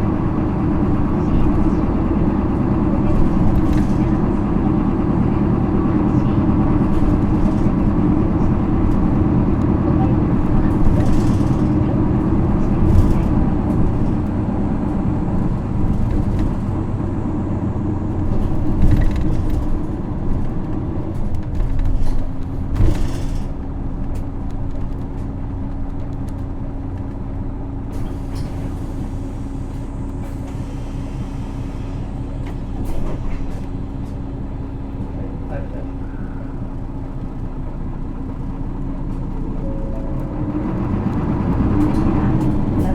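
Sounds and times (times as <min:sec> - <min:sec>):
bus diesel engine: 0:00.0 - 0:42.9
air brake hiss: 0:27.9 - 0:32.1.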